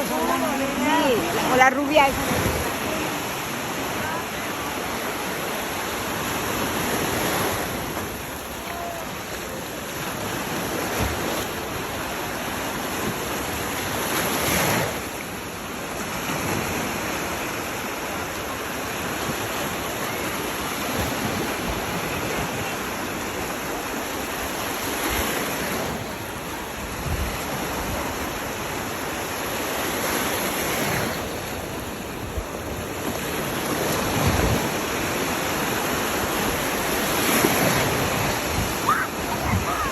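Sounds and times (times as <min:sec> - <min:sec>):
sea surf breaking on beach: 0:00.0 - 0:39.9
wind buffeting microphone: 0:36.2 - 0:39.9.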